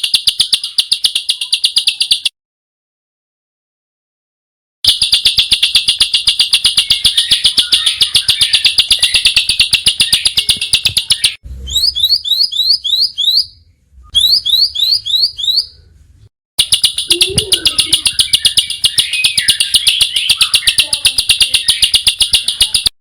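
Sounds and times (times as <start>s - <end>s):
quick rising bird chirps: 5.3s - 16.0s, 16.6s - 22.9s
songbird harsh high trill: 16.6s - 22.9s.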